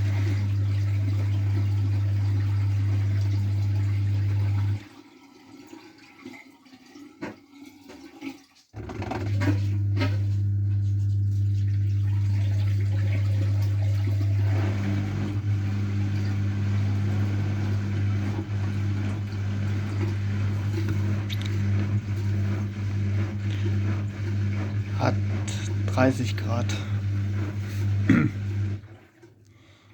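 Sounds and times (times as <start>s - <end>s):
washing machine electrical hum: 0.0s - 5.8s, 8.8s - 29.4s.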